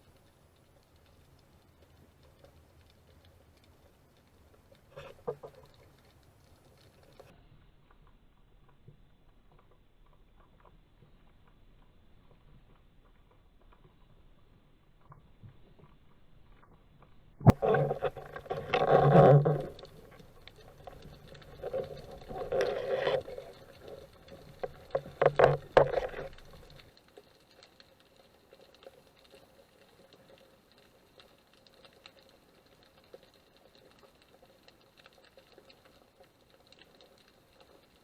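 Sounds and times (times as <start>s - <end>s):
faint crackling and ticking: 0.0s - 38.0s
water sloshing and splashing: 17.5s - 27.0s.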